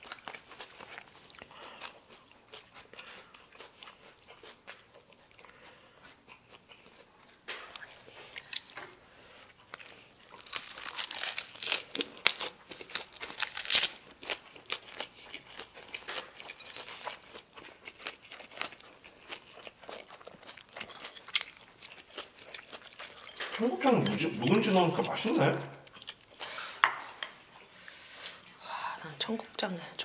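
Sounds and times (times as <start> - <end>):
crunchy chewing: 0.0 - 23.6.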